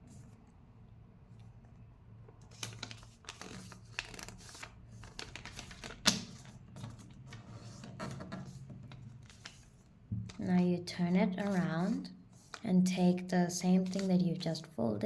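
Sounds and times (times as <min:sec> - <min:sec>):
paper rustling and crackling: 0:02.5 - 0:10.5, 0:11.3 - 0:12.7, 0:13.8 - 0:14.2.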